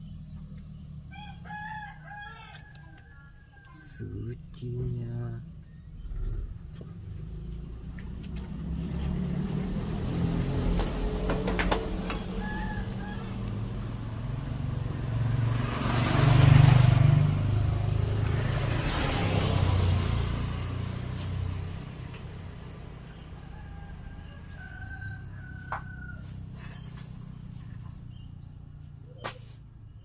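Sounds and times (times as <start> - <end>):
vehicle engine passing: 0.0 - 30.0
bird calls: 4.7 - 8.4, 25.8 - 30.0.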